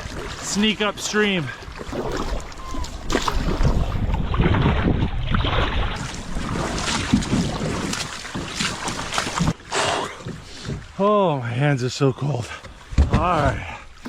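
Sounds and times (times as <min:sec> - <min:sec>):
paddle splashes: 0:00.0 - 0:11.1
water sounds: 0:00.0 - 0:14.0
wind on microphone: 0:01.9 - 0:08.0.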